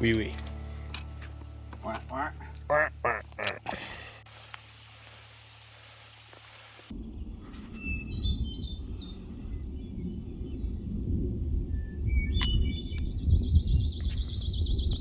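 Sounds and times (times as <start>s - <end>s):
songbirds chirping: 0.0s - 15.0s
steady hiss: 4.1s - 6.9s.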